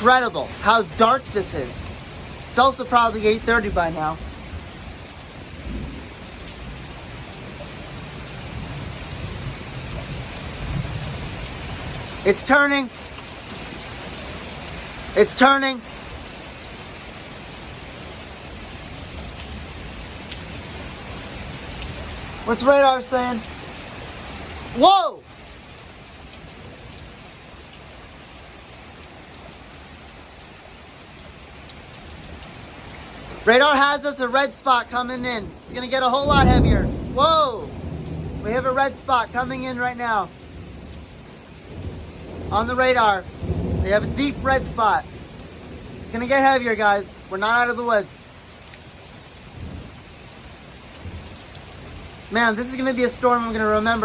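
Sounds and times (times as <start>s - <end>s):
distant thunder: 0.0s - 12.2s, 35.2s - 39.7s, 40.3s - 46.2s
heavy rain pouring: 0.0s - 54.0s
faint raindrop ticks: 12.8s - 14.8s, 18.4s - 20.5s, 29.2s - 33.4s, 48.1s - 52.2s
low wind rumble: 32.2s - 46.3s.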